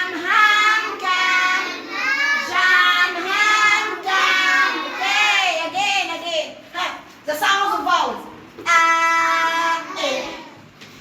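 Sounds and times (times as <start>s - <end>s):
children singing: 0.0s - 5.4s.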